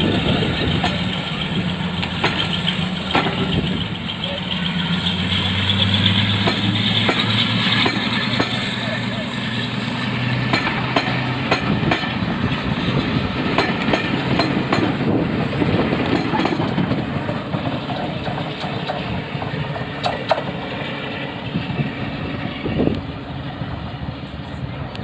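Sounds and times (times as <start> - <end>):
diesel locomotive engines running: 0.0 - 25.0
sharp metallic clanks: 2.0 - 4.8, 5.6 - 8.7.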